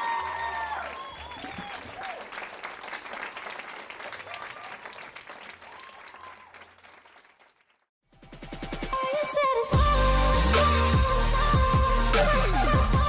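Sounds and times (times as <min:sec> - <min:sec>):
crowd applause: 0:00.0 - 0:07.8.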